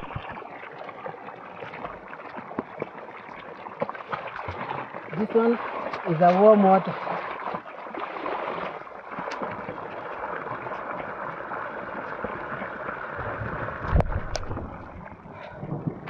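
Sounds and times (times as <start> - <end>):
low rumbling thump: 0.0 - 0.4, 13.2 - 16.0
running water gurgling: 0.0 - 16.0.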